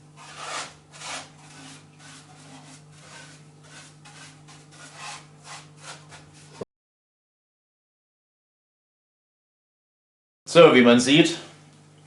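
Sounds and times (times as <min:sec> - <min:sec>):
hard material scraping: 0:00.0 - 0:06.6.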